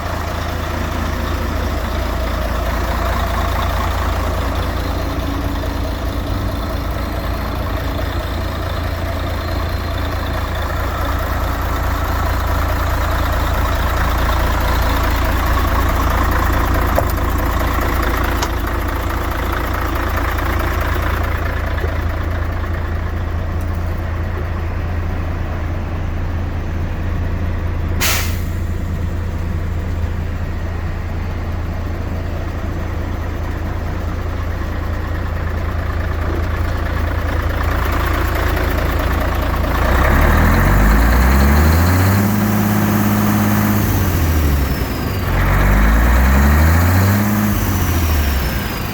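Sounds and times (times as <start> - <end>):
diesel truck engine rumbling: 0.0 - 48.9
compressed air hiss: 28.0 - 28.6.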